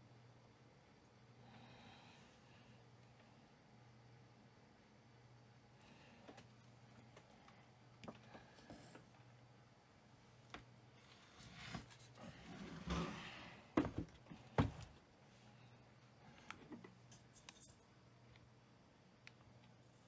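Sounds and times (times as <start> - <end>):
faint low hum: 0.0 - 20.0
objects rubbing and scraping: 11.3 - 13.5.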